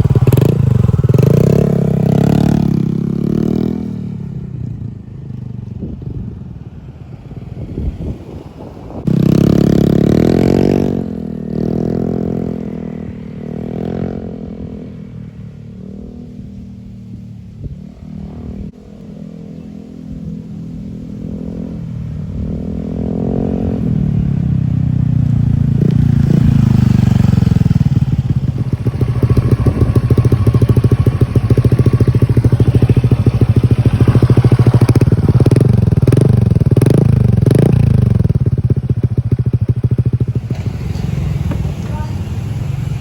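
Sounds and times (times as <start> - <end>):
scooter engine revving: 0.0 - 4.7, 7.2 - 14.7, 21.3 - 43.0.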